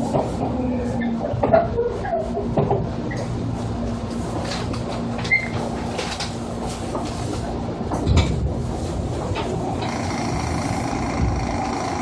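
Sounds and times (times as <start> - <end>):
constant hum: 0.0 - 12.0
train interior rumble: 0.0 - 12.0.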